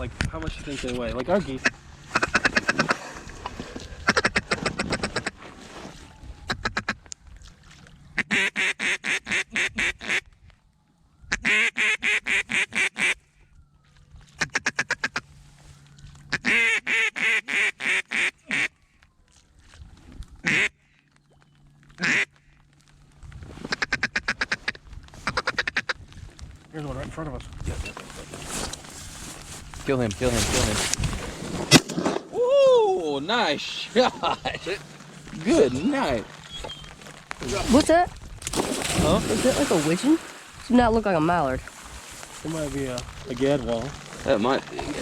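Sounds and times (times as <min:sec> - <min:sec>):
duck call quacking: 0:01.6 - 0:03.0, 0:04.0 - 0:05.3, 0:06.5 - 0:07.0, 0:08.2 - 0:10.2, 0:11.3 - 0:13.3, 0:14.4 - 0:15.2, 0:16.3 - 0:18.7, 0:20.4 - 0:20.8, 0:22.0 - 0:22.6, 0:23.7 - 0:26.0.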